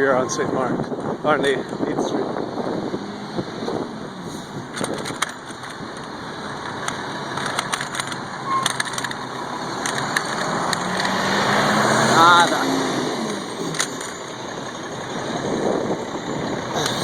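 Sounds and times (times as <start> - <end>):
steady street rush: 0.0 - 17.0
bicycle clicks and rattles: 4.7 - 9.2.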